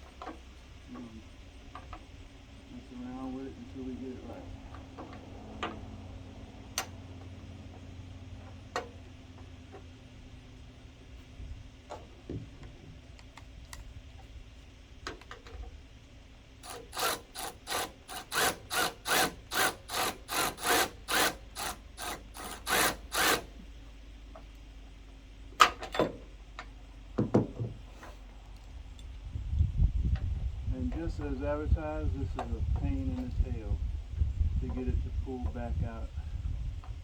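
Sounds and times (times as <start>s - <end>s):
hand tool rasping strokes: 16.6s - 23.6s
dull knocks: 27.2s - 27.8s.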